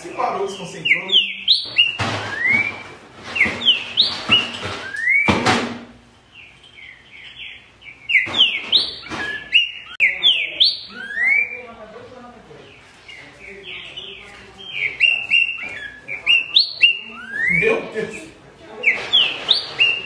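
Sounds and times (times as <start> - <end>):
bird singing whistled phrases: 0.5 - 5.3, 6.4 - 11.7, 13.7 - 17.7, 18.8 - 20.0.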